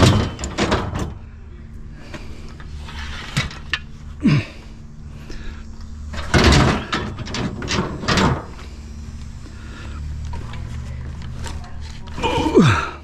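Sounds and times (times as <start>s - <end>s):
metal scrap clanking: 0.0s - 1.2s, 6.2s - 8.5s.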